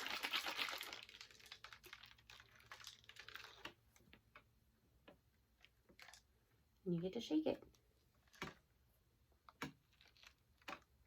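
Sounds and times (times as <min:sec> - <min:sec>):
plastic water bottle clicks and taps: 0:09.5 - 0:09.9.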